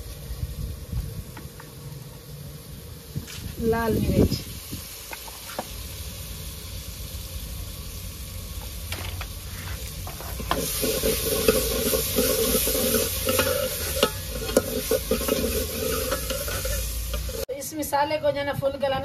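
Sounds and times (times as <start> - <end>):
masala sizzling in oil: 0.0 - 19.0
spoon knocking and scraping pot: 10.1 - 17.4.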